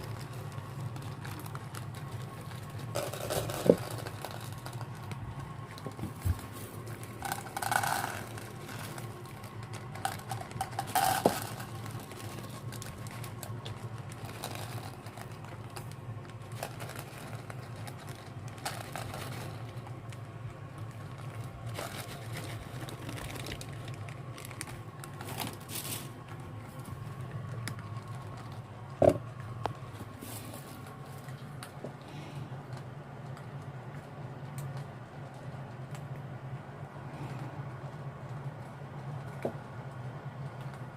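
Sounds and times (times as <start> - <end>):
cat eating with small crunches: 0.0 - 40.9
steady low hum: 0.0 - 40.9.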